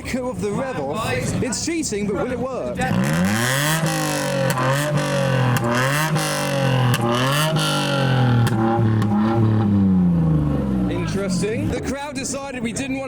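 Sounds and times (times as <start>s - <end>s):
car engine revving: 2.7s - 11.8s
exhaust cracks: 2.7s - 11.8s.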